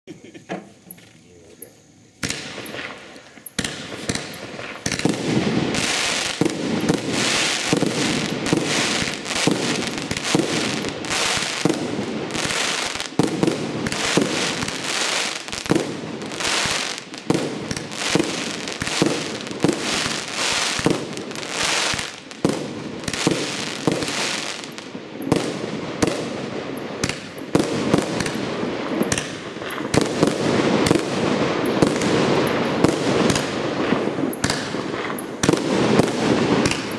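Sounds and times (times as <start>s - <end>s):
crackling firework sparks: 0.7s - 36.9s
firework launch thumps: 2.2s - 7.1s, 29.0s - 31.1s, 34.4s - 36.9s
firework shell bursts: 2.2s - 25.3s, 26.0s - 36.9s.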